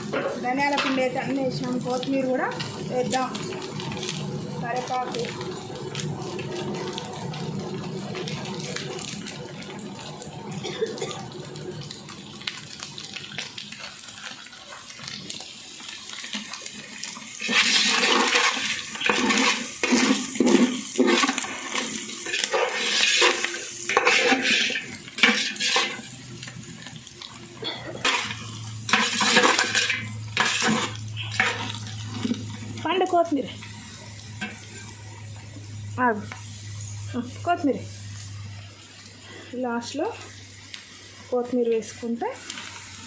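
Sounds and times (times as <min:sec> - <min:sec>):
food sizzling in pan: 0:00.0 - 0:43.0
ladle scraping metal pan: 0:22.2 - 0:26.1, 0:28.0 - 0:32.4.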